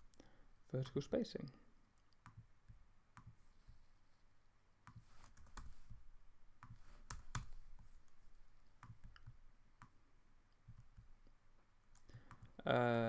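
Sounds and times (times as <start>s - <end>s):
computer mouse clicks: 2.0s - 3.4s, 4.9s - 6.0s, 6.6s - 11.1s.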